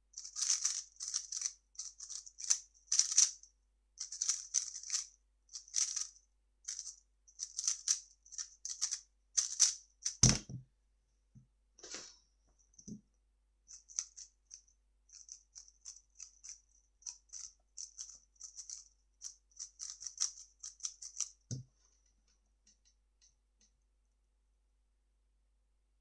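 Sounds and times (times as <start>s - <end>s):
puzzle cube clicking turns: 0.2s - 3.3s, 4.0s - 5.0s, 5.6s - 6.1s, 15.5s - 21.4s
low thump: 10.2s - 10.6s.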